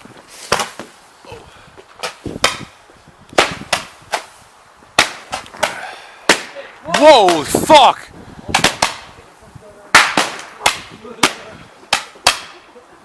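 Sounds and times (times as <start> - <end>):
fireworks bangs: 9.9 - 12.6.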